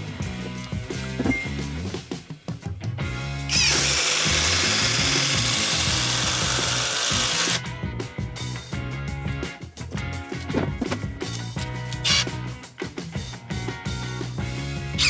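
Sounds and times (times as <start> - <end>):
background music: 0.0 - 15.0
cordless impact driver running: 3.5 - 7.6, 11.9 - 12.4.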